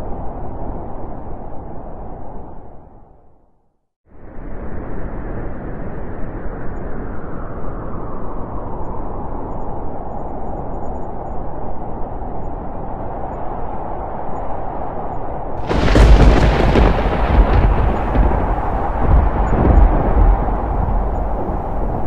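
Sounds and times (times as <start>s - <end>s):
rolling thunder: 15.6s - 22.0s.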